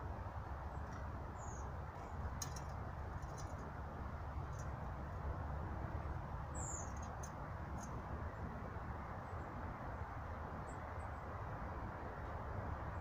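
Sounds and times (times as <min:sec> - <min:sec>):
high-pitched small bird calls: 0:01.4 - 0:01.7, 0:06.5 - 0:07.2.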